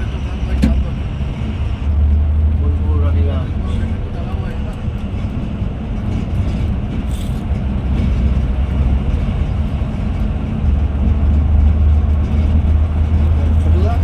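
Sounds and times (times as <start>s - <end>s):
coach engine and road rumble: 0.0s - 14.0s.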